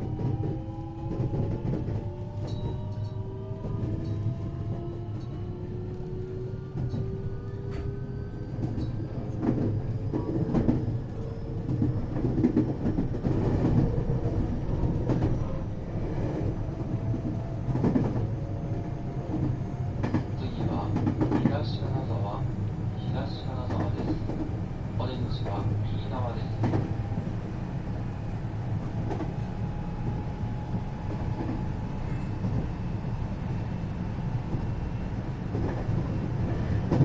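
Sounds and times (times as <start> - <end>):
train low rumble: 0.0 - 37.0.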